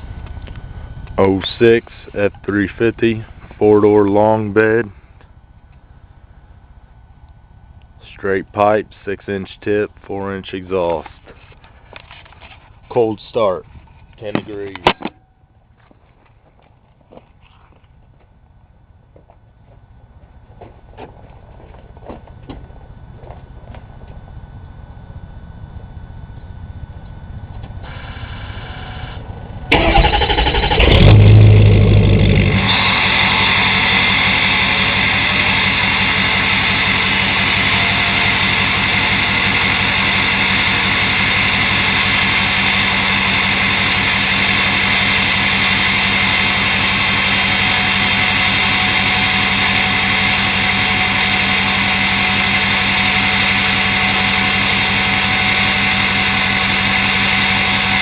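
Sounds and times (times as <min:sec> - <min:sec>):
diesel engine starting and idling: 0:27.7 - 0:58.0
starter motor cranking: 0:29.7 - 0:43.0.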